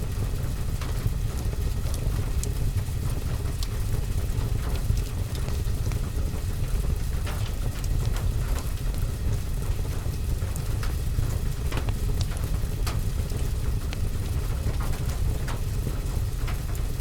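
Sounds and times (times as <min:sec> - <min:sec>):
fire crackling and popping: 0:00.8 - 0:17.0.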